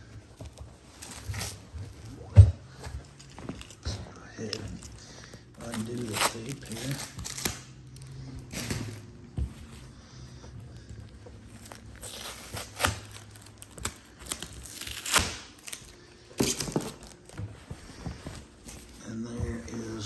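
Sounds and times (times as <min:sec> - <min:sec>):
wrapping rustling and crinkling: 0:00.0 - 0:20.0
tape being peeled and torn: 0:04.4 - 0:09.0, 0:11.5 - 0:17.4.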